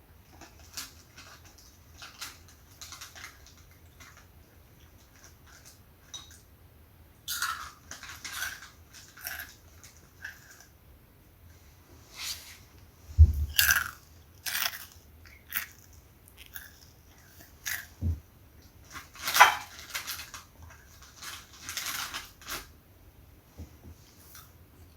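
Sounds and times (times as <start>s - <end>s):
crunchy snack being chewed: 7.3s - 10.7s, 13.5s - 18.0s
low thumps: 13.1s - 13.6s.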